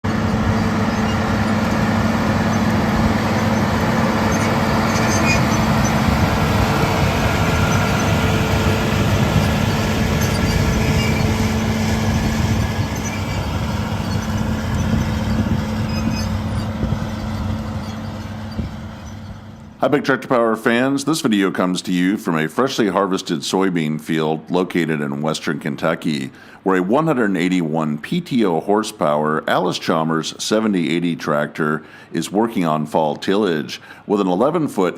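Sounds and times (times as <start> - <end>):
tractor diesel engine running: 0.0 - 20.2.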